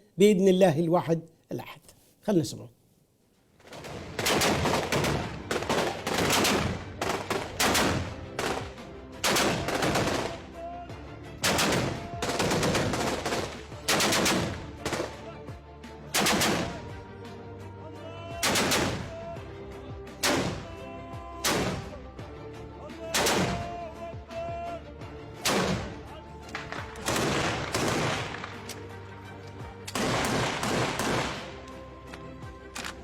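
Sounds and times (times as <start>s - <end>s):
background music: 0.0s - 2.7s, 3.4s - 33.0s
automatic gunfire bursts: 3.7s - 10.4s, 11.4s - 15.2s, 16.2s - 16.8s, 26.6s - 28.6s, 29.9s - 31.5s.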